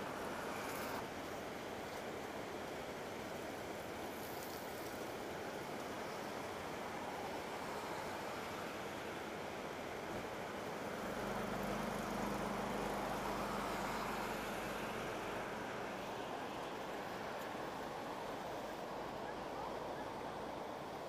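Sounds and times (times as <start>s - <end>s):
floodwater rushing: 0.0s - 21.0s
traffic noise: 0.0s - 21.0s
vehicle engine humming past: 7.2s - 20.1s.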